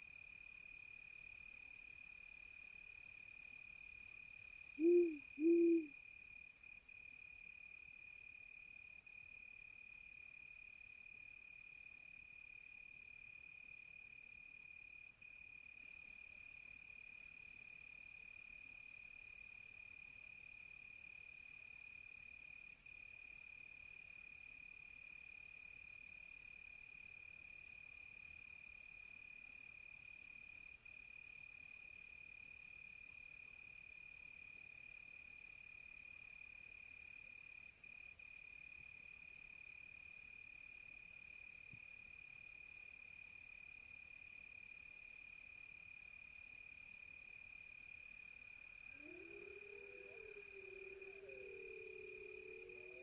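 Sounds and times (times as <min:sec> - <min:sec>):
cricket trill: 0:04.8 - 0:05.9, 0:47.8 - 0:53.0
faint insect pulsing: 0:04.8 - 0:05.9, 0:47.9 - 0:53.0
owl hooting: 0:04.8 - 0:05.9, 0:48.9 - 0:53.0.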